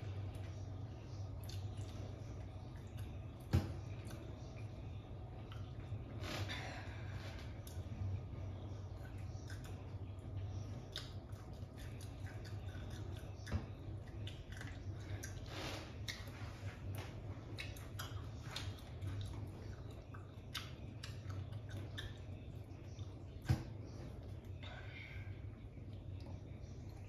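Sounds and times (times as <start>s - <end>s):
person chewing and crunching: 1.4s - 2.1s, 10.8s - 23.3s.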